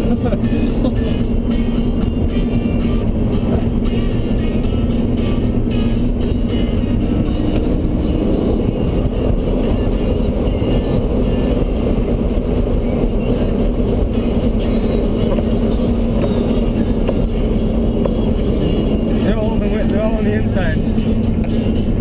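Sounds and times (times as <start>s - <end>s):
pickup truck engine: 0.0s - 22.0s.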